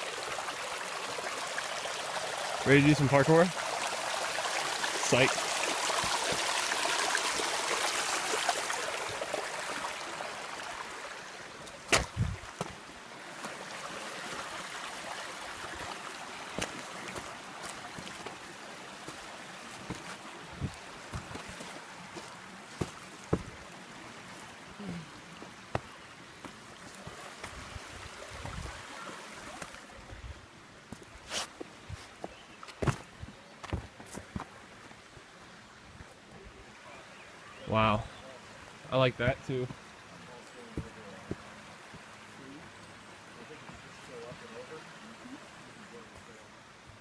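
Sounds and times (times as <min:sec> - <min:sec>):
creek water running: 0:00.0 - 0:47.0
footsteps on trail: 0:11.6 - 0:14.5, 0:15.6 - 0:23.6, 0:25.4 - 0:27.7, 0:30.9 - 0:35.0, 0:40.7 - 0:42.1.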